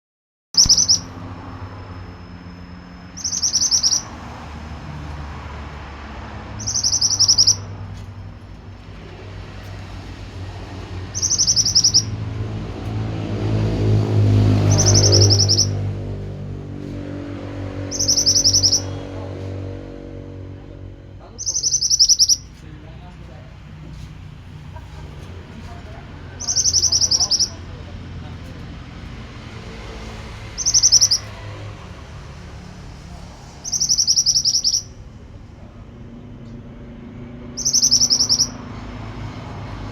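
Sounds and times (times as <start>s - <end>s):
bird singing high phrases: 0.6s - 4.2s, 6.6s - 7.8s, 11.1s - 12.3s, 14.6s - 15.9s, 17.8s - 19.6s, 21.2s - 22.6s, 26.3s - 27.8s, 30.6s - 31.5s, 33.6s - 35.0s, 37.6s - 38.6s.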